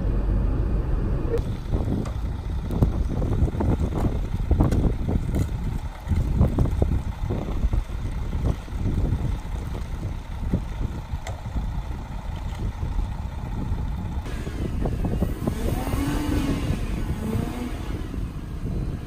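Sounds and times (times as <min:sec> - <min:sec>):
truck engine running: 0:00.0 - 0:19.0
wind buffeting microphone: 0:00.0 - 0:19.0
wheels spinning in snow: 0:01.3 - 0:19.0
car engine revving: 0:14.2 - 0:19.0.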